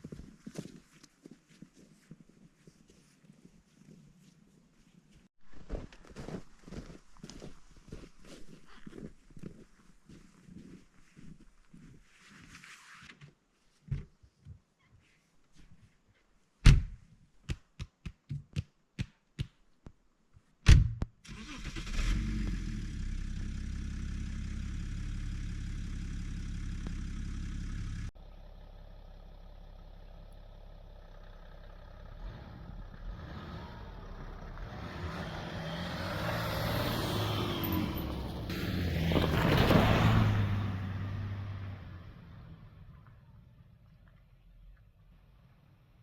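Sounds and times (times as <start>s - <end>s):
car engine starting and running: 21.3s - 44.0s
car moving: 29.5s - 43.8s.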